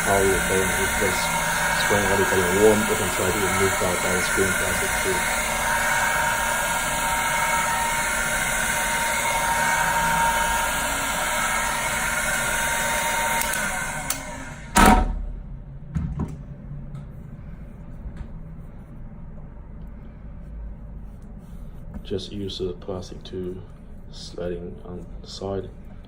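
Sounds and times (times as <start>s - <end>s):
heat gun blowing hot air: 0.0s - 15.0s
loud knock: 14.8s - 15.2s.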